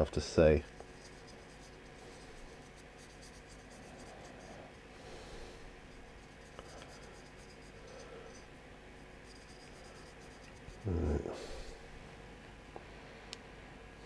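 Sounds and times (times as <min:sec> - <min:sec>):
paintbrush scrubbing: 0:00.7 - 0:11.8.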